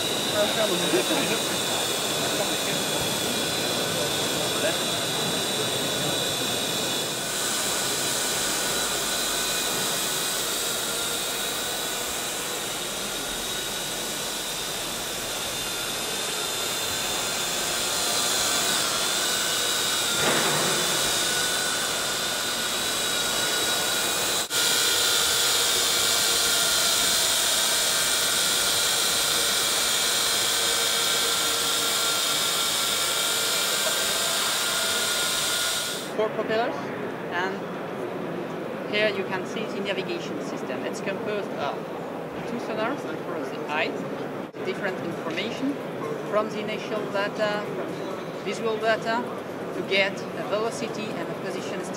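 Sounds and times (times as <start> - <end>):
drone propellers whining: 0.0 - 36.2.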